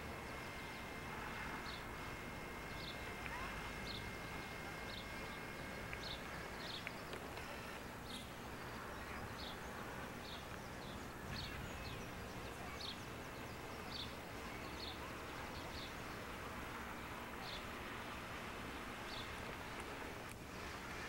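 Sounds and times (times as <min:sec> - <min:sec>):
background hiss and rumble: 0:00.0 - 0:21.0.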